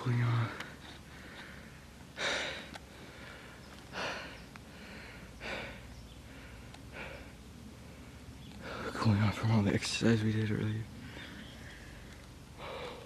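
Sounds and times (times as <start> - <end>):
man breathing hard: 0.6 - 9.0, 11.0 - 13.0.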